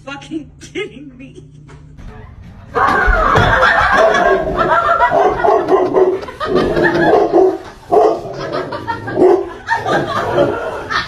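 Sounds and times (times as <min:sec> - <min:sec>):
people laughing: 0:02.6 - 0:11.0
dog barking: 0:03.9 - 0:06.2, 0:06.9 - 0:08.3, 0:09.1 - 0:09.6.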